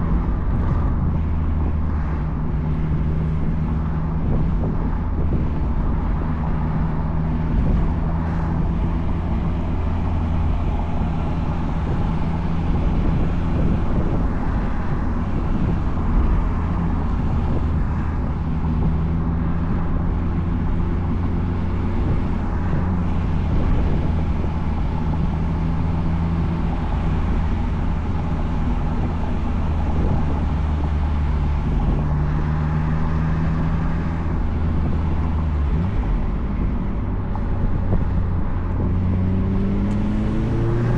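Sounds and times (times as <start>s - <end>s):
car engine cruising: 0.0s - 40.9s
road noise: 0.0s - 40.9s
wind noise: 0.0s - 40.9s.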